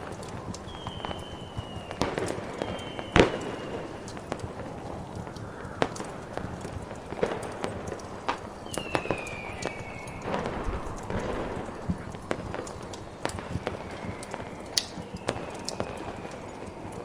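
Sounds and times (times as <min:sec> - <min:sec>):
distant fireworks: 0:00.0 - 0:17.0
snowstorm hiss: 0:00.0 - 0:17.0
wood fire crackling: 0:00.0 - 0:17.0
high whistle falling in pitch: 0:00.6 - 0:04.4, 0:08.6 - 0:11.4, 0:13.3 - 0:17.0.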